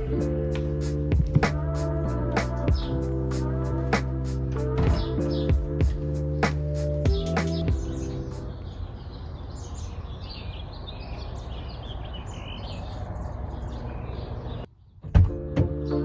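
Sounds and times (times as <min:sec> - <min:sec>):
steady low rumble: 0:00.0 - 0:09.0
small birds chirping: 0:00.0 - 0:16.0
music with a sharp hit: 0:02.4 - 0:03.0, 0:04.8 - 0:07.9.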